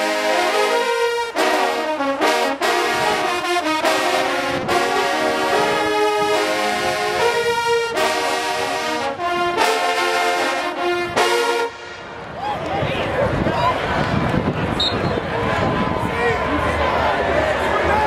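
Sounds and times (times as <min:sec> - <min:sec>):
brass band playing fanfare: 0:00.0 - 0:12.2.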